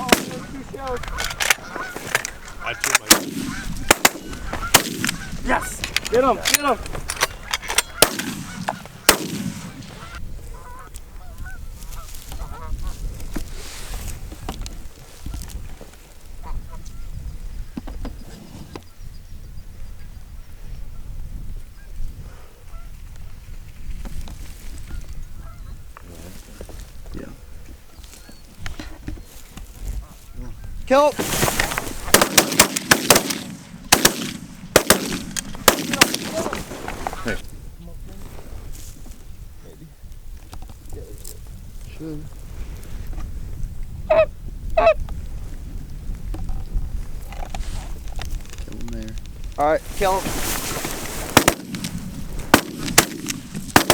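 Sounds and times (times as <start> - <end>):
shotgun blasts: 0.0 - 1.6, 2.8 - 5.3, 7.8 - 10.0, 32.0 - 36.7, 51.3 - 53.9
geese honking: 0.0 - 12.9, 44.1 - 45.0
wind rumble: 0.0 - 53.9.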